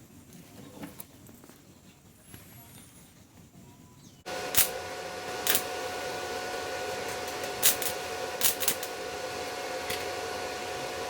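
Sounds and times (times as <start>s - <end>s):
welding arc hissing: 4.3s - 11.0s
welding arc popping: 4.3s - 11.0s.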